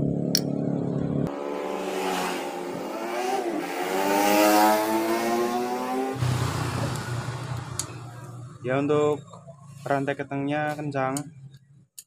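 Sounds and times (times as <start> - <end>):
motor running rising pitch: 0.0 - 8.9.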